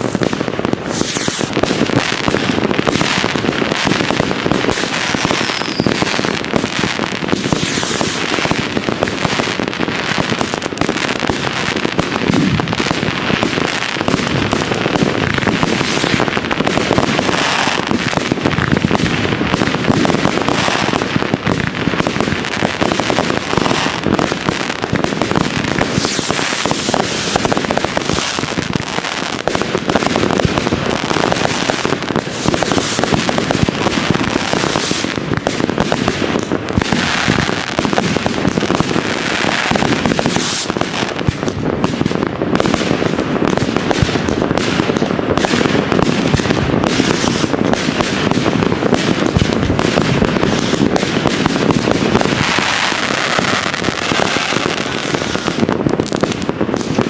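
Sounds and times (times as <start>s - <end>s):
fireworks bangs pops and crackles: 0.0s - 57.0s.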